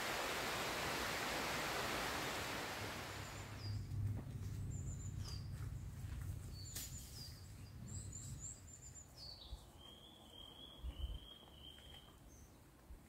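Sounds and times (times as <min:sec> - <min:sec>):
faint low rumble: 0:02.7 - 0:09.7
birds chirping: 0:03.0 - 0:12.6.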